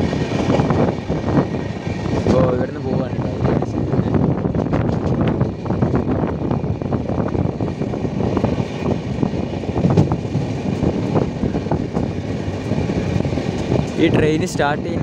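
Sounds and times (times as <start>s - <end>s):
train rumble: 0.0s - 15.0s
wheels clanking on rails: 0.0s - 15.0s.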